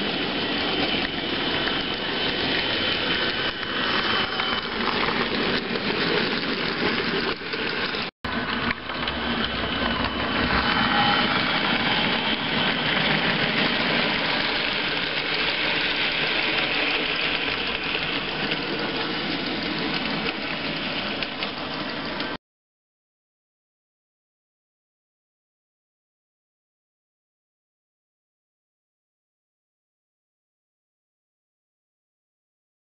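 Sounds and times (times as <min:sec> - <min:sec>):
model train running on track: 0:00.0 - 0:22.4.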